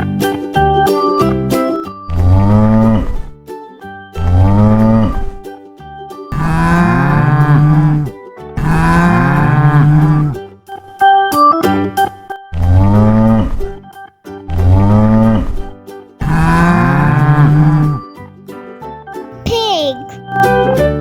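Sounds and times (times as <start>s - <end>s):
cow mooing: 2.1s - 3.4s, 4.2s - 5.4s, 6.3s - 10.4s, 12.6s - 13.8s, 14.5s - 18.0s
children's background music: 19.5s - 20.2s.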